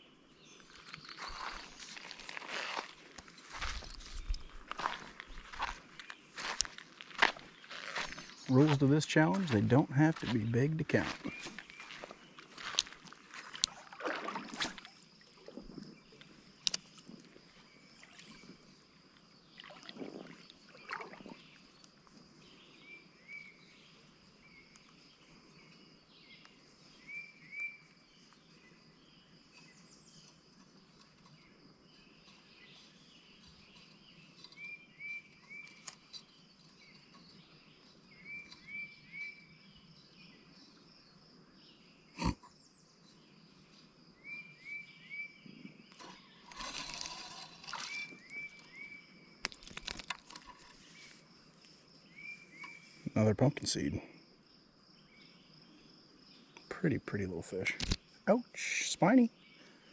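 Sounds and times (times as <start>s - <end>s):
bird chirping: 14.8s - 51.4s, 52.0s - 54.0s.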